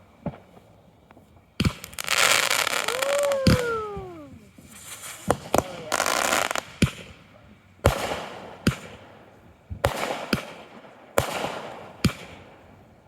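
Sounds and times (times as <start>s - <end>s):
fireworks crackling hiss: 0.0s - 13.0s
fireworks banging: 1.6s - 7.1s.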